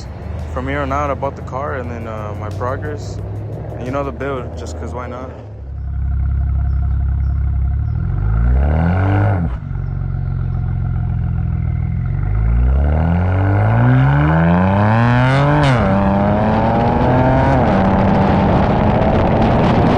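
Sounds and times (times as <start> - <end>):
car engine accelerating: 0.0 - 19.9.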